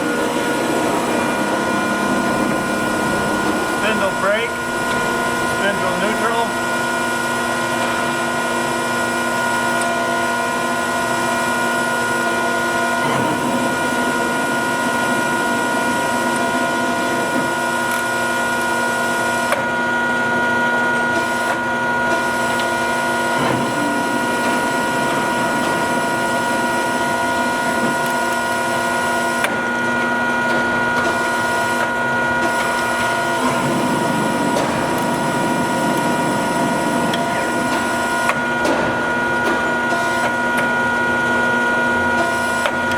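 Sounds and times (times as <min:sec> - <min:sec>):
lathe mechanical whine: 0:00.0 - 0:42.9.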